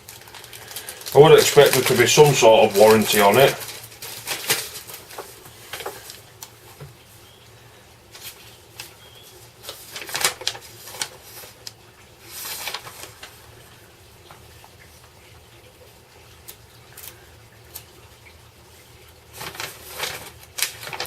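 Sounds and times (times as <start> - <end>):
paper pages rustling: 0.0 - 7.0, 8.1 - 14.8, 19.3 - 21.0.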